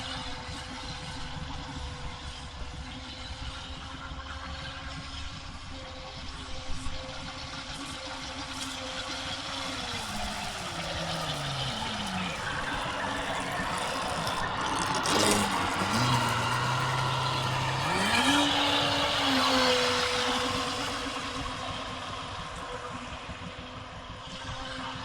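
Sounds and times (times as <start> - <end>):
electric motor whining: 7.6 - 23.6.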